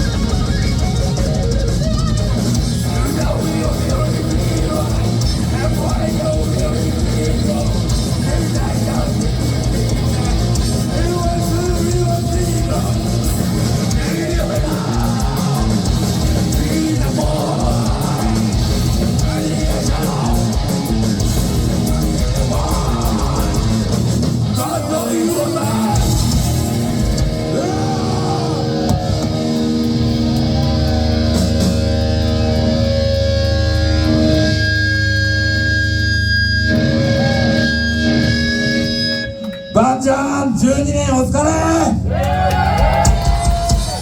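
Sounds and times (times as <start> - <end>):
fast pounding bass drum: 0.0 - 27.9, 42.6 - 44.0
distorted electric guitars: 0.0 - 44.0.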